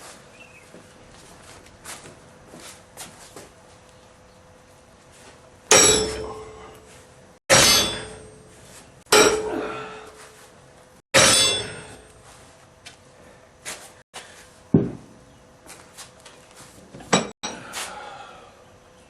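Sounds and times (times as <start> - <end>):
metal-on-metal clangs: 5.7 - 6.9, 7.5 - 9.6, 11.2 - 12.3, 17.1 - 17.6.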